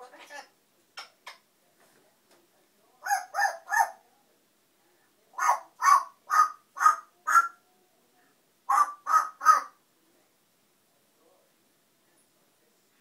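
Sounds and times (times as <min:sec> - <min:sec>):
parrot squawking: 0:03.0 - 0:04.0, 0:05.4 - 0:07.6, 0:08.7 - 0:09.8.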